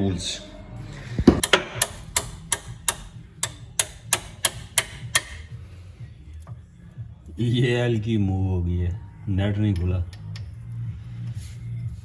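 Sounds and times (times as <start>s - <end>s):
hammer tapping metal pipe: 1.3s - 5.6s.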